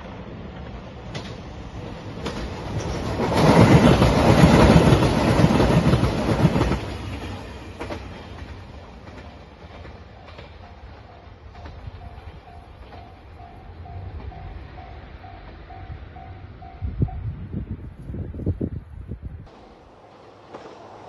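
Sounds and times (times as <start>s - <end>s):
wheels clattering over rail joints: 0.0s - 14.8s, 19.5s - 21.0s
diesel train passing: 0.0s - 21.0s.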